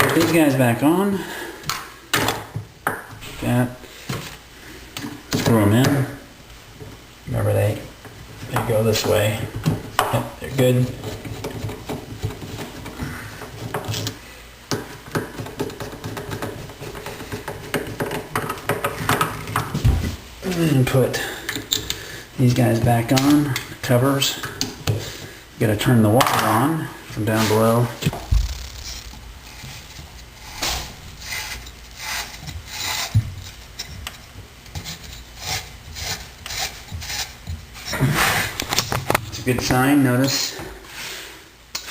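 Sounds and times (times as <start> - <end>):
valve rubbing and scraping: 27.3 - 34.0.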